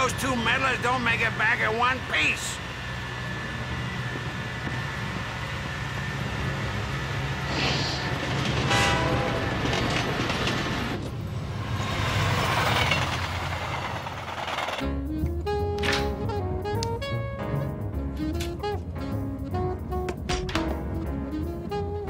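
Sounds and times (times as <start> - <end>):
train rumbling at speed: 0.0 - 14.9.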